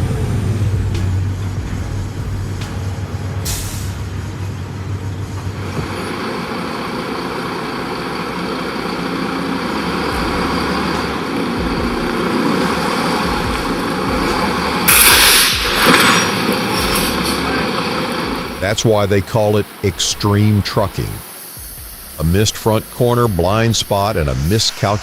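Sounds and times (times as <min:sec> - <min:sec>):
diesel truck engine running: 0:00.0 - 0:25.0
air brake hiss: 0:03.4 - 0:04.2, 0:12.2 - 0:18.6.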